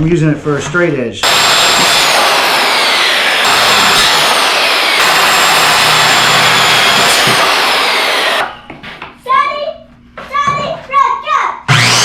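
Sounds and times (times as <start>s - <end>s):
circular saw cutting wood: 1.2s - 8.6s, 11.7s - 12.0s.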